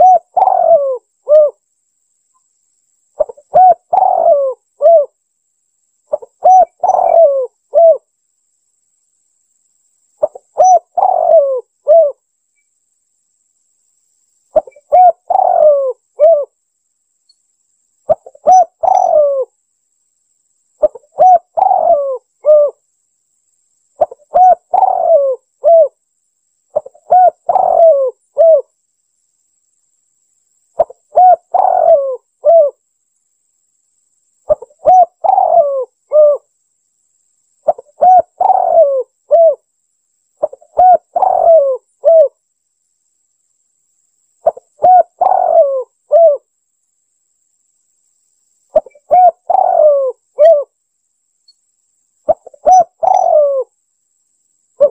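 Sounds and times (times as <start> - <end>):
dove cooing: 0.0 - 1.6, 3.2 - 5.2, 6.1 - 8.1, 10.2 - 12.2, 14.6 - 16.6, 18.1 - 19.5, 20.8 - 22.8, 24.0 - 26.0, 26.7 - 28.7, 30.8 - 32.8, 34.5 - 36.5, 37.6 - 39.7, 40.4 - 42.4, 44.4 - 46.5, 48.7 - 50.7, 52.3 - 53.7.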